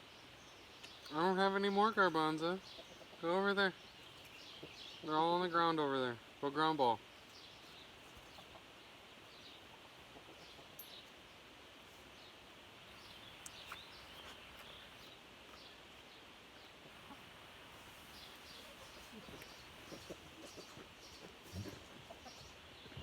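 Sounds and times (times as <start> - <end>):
chicken clucks: 2.6 - 3.2, 8.0 - 8.8, 9.6 - 10.8, 16.8 - 17.4, 18.1 - 23.0
bird chirps: 18.1 - 23.0.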